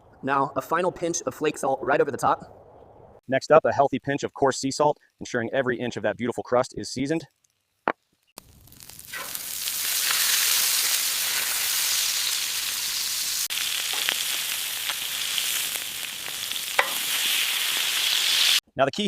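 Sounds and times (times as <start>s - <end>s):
food sizzling: 7.3s - 18.6s
oil popping: 13.4s - 18.0s.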